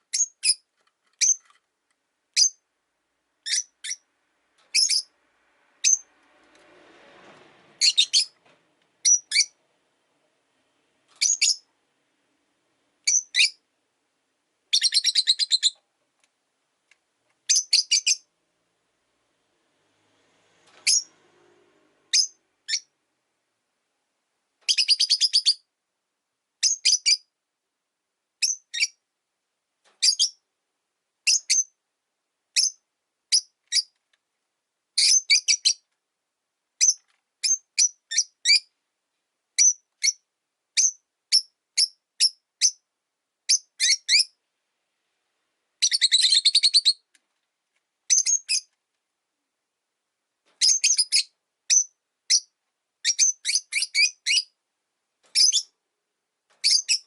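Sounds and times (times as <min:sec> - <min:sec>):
lovebirds chirping: 0:00.0 - 0:01.5, 0:02.3 - 0:02.7, 0:03.4 - 0:04.1, 0:04.7 - 0:05.2, 0:05.8 - 0:06.1, 0:07.8 - 0:08.4, 0:09.0 - 0:09.6, 0:11.1 - 0:11.7, 0:13.0 - 0:13.6, 0:14.7 - 0:15.8, 0:17.4 - 0:18.3, 0:20.8 - 0:21.1, 0:22.1 - 0:22.9, 0:24.6 - 0:25.7, 0:26.6 - 0:27.3, 0:28.4 - 0:29.0, 0:30.0 - 0:30.4, 0:31.2 - 0:31.8, 0:32.6 - 0:34.0, 0:35.0 - 0:35.9, 0:36.8 - 0:38.7, 0:39.6 - 0:40.2, 0:40.8 - 0:42.8, 0:43.5 - 0:44.4, 0:45.8 - 0:47.1, 0:48.0 - 0:48.8, 0:50.6 - 0:54.6, 0:55.2 - 0:55.8, 0:56.6 - 0:57.0.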